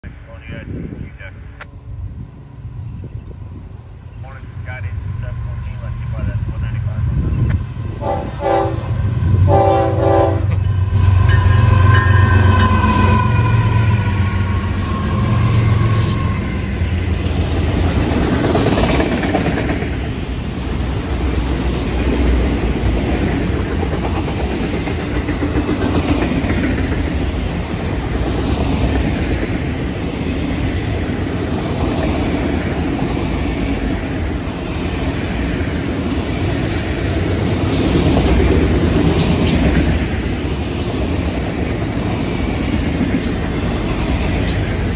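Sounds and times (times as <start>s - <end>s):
diesel locomotives humming: 0.0s - 44.9s
train wheels clattering on rails: 4.7s - 44.9s.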